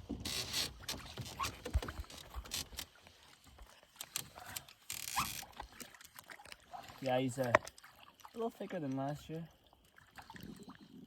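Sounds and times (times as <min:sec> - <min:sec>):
fishing gear knocking and rustling: 0:00.0 - 0:06.3.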